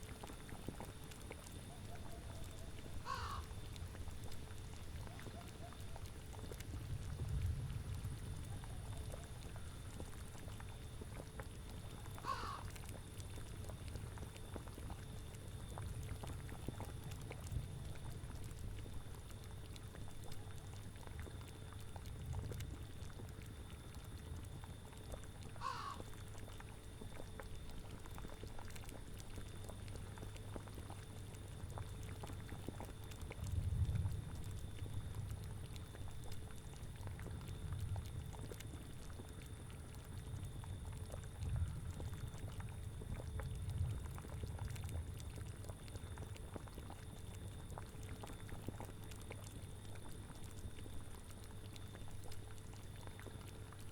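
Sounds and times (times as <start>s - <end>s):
short animal call: 3.0s - 3.4s, 12.2s - 12.7s, 25.6s - 26.0s
cauldron bubbling: 27.9s - 53.9s.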